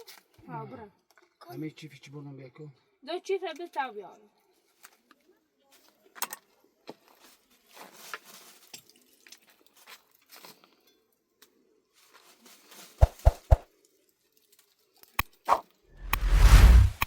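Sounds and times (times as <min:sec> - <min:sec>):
faint rustling and crackling: 0:07.0 - 0:10.8, 0:11.9 - 0:13.0.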